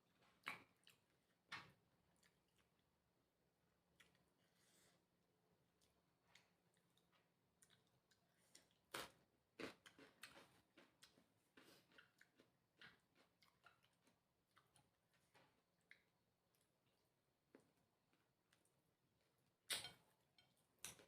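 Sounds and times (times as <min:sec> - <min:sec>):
person chewing: 0:00.2 - 0:01.4, 0:02.1 - 0:03.0, 0:03.9 - 0:04.7, 0:05.7 - 0:18.8.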